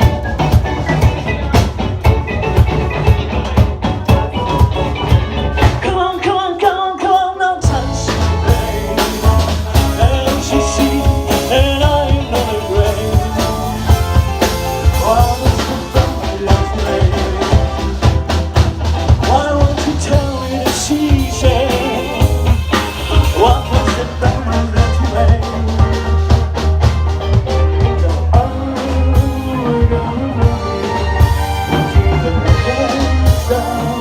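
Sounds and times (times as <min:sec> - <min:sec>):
bass: 0:00.0 - 0:34.0
drum kit: 0:00.0 - 0:34.0
live rock band playing: 0:00.0 - 0:34.0.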